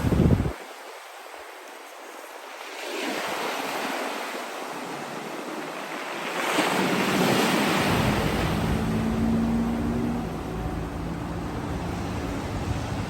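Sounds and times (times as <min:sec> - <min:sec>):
waves washing onto shore: 0:00.0 - 0:13.0
low steady hum: 0:07.9 - 0:13.0.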